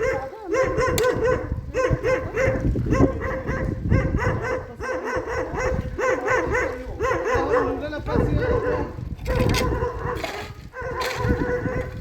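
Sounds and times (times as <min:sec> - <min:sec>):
dog barking and yipping: 0:00.0 - 0:12.0.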